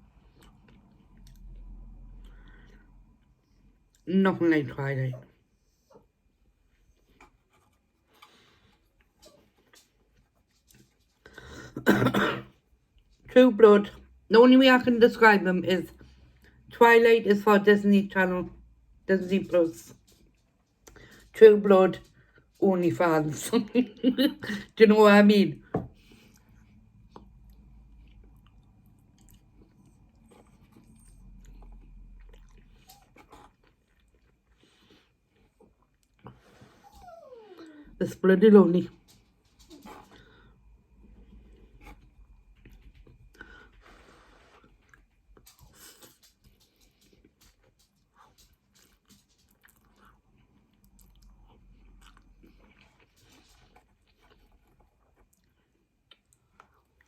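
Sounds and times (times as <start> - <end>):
chewing noodles: 0.0 - 4.0, 26.0 - 37.8, 39.0 - 57.0.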